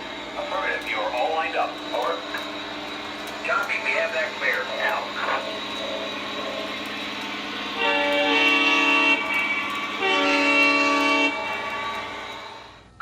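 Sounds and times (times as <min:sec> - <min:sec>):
steady low hum: 0:00.0 - 0:13.0
toy train horn blasts: 0:03.4 - 0:13.0.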